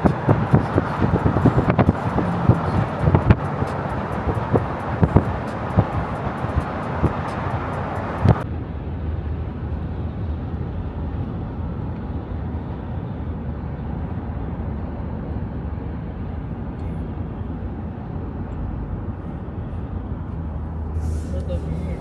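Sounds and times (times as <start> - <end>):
tyre and wind hiss: 0.0 - 8.4, 20.8 - 22.0
car road noise from inside: 0.0 - 8.5, 14.0 - 22.0.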